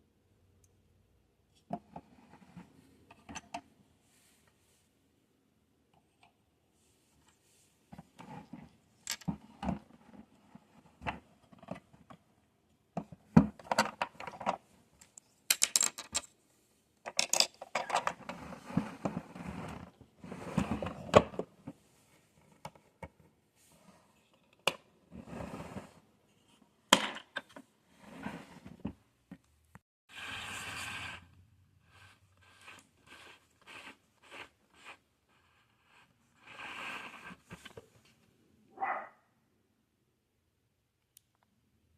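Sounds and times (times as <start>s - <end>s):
plastic toys handled and set down: 7.9s - 10.2s, 13.0s - 16.4s, 17.0s - 19.8s, 26.9s - 27.7s.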